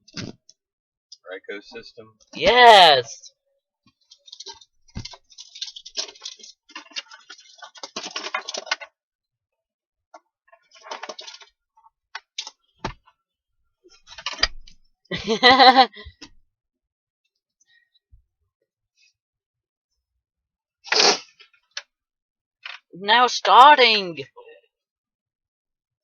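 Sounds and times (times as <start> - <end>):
handling clicks and rustles: 4.0 - 8.9.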